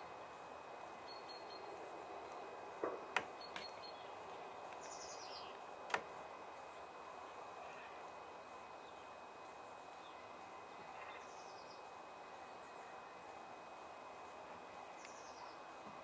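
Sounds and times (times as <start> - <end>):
steady background hiss: 0.0 - 16.0
sharp clicks: 3.1 - 3.8, 5.9 - 6.1
small birds chirping: 3.2 - 5.6, 15.0 - 15.7.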